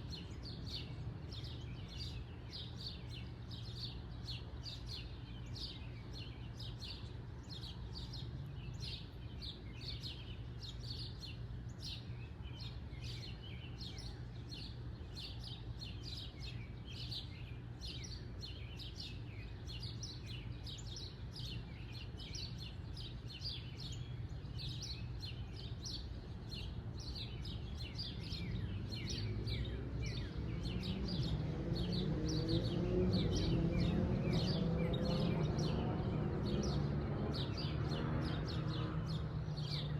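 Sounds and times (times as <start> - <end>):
low steady background hum: 0.0 - 30.6
birds chirping: 0.0 - 39.9.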